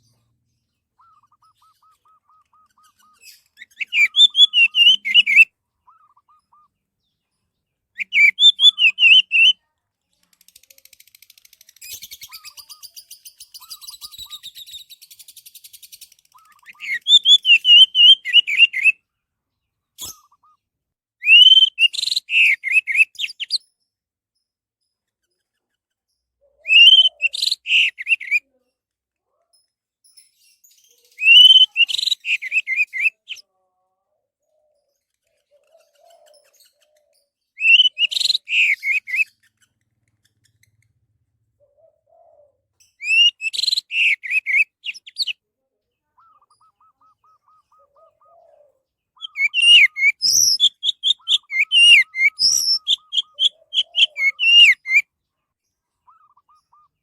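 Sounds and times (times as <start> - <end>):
faint fast ticking bird trill: 0.0 - 6.8, 8.0 - 19.0, 42.8 - 45.4, 49.1 - 55.1
thrush singing whistled notes: 1.0 - 6.7, 8.0 - 9.6, 16.4 - 19.0, 21.2 - 23.6, 26.6 - 28.4, 37.6 - 39.2, 43.0 - 45.3, 49.2 - 55.1.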